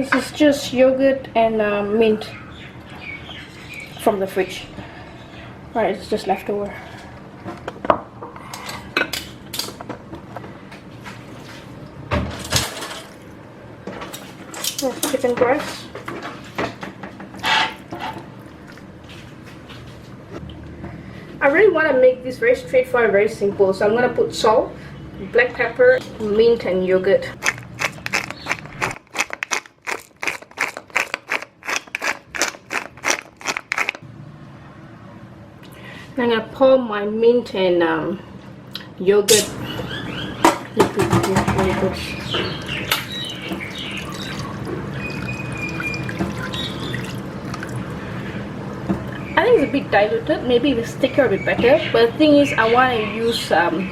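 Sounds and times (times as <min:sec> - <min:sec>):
pepper mill grinding: 0:27.4 - 0:34.0
dishes clinking and knocking: 0:40.4 - 0:43.1.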